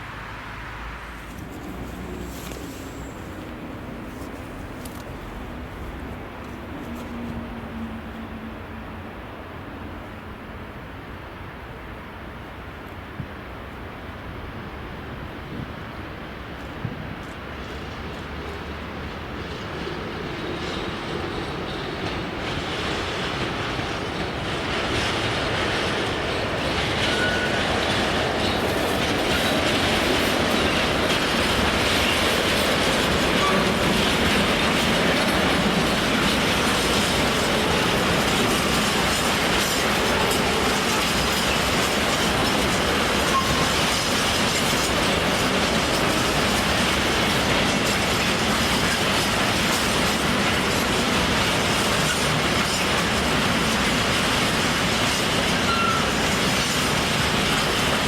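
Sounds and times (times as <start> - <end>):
train running past: 0.0 - 58.0
wheels clattering over rail joints: 17.5 - 58.0.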